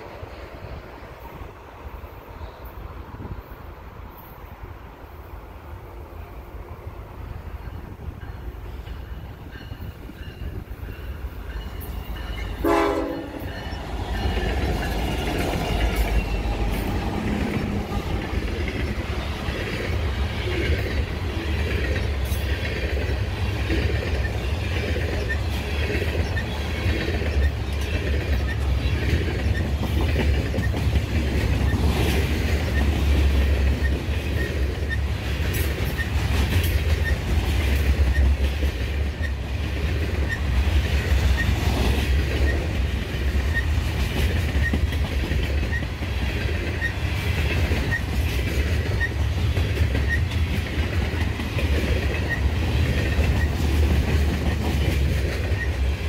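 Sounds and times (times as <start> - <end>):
locomotive engine rumbling: 7.0 - 41.4
wheels clacking over rail joints: 8.8 - 56.0
train horn blast: 12.5 - 14.4.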